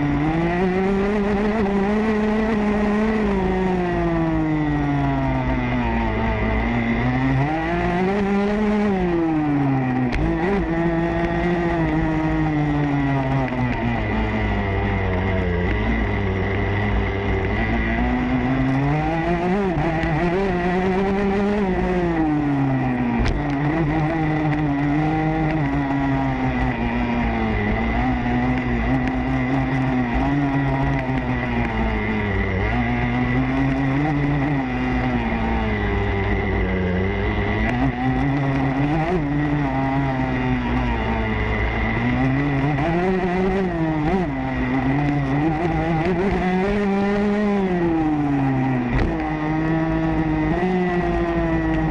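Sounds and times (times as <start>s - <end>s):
motocross bike engine revving: 0.0s - 51.9s.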